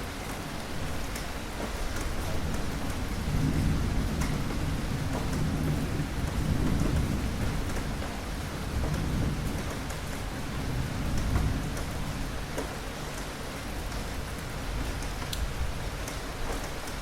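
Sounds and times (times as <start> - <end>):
steady rain: 0.0 - 17.0
distant thunder rumbling: 0.8 - 13.0.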